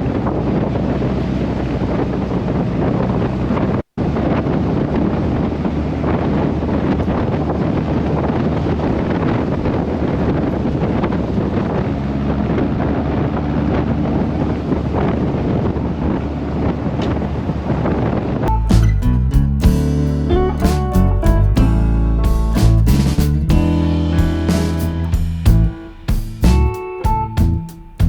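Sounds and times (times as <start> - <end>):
wind buffeting microphone: 0.0 - 19.9
car engine and road noise: 0.0 - 28.0.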